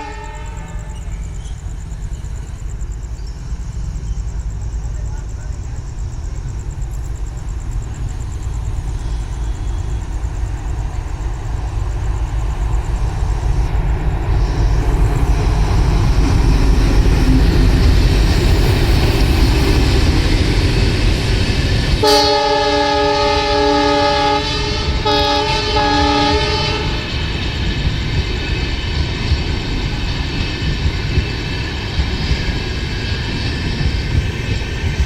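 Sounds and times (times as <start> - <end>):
locomotive horn blasts: 0.0 - 1.0, 22.0 - 27.1
train passing rumble: 0.0 - 35.0.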